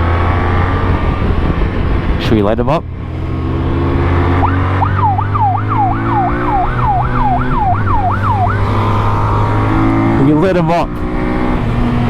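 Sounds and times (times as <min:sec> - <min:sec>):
motorcycle engine hum: 0:00.0 - 0:12.0
siren yelping: 0:04.4 - 0:10.5.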